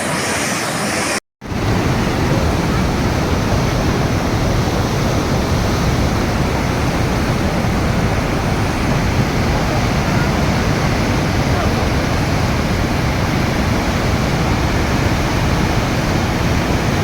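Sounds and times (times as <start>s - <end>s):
river rushing in flood: 0.0s - 17.0s.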